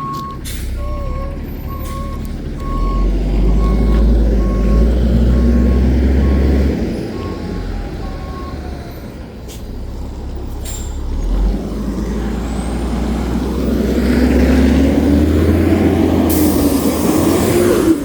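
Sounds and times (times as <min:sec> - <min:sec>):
truck diesel engine running: 0:00.0 - 0:18.0.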